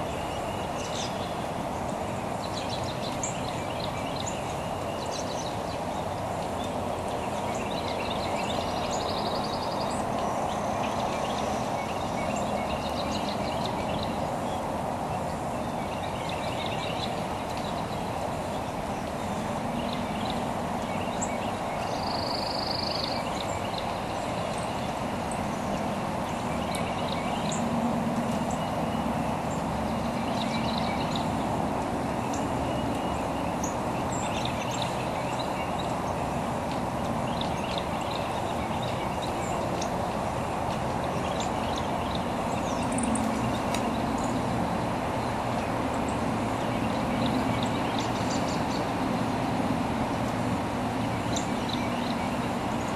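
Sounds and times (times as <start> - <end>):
birds chirping: 0.0 - 52.9.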